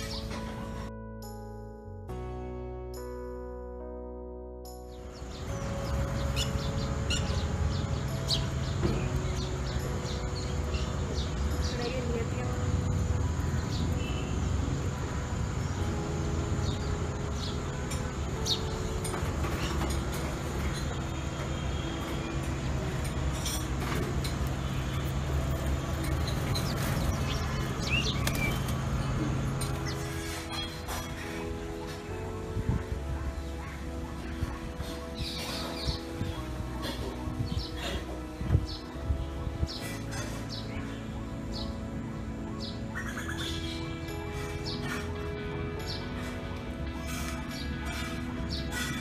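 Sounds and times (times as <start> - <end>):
flock of small birds chirping: 5.1 - 14.6, 24.2 - 41.8, 42.6 - 49.0
small birds chirping: 5.1 - 14.9.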